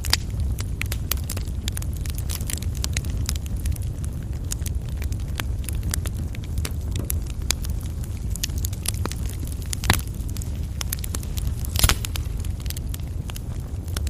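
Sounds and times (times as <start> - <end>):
fireplace fire crackling: 0.0 - 14.0.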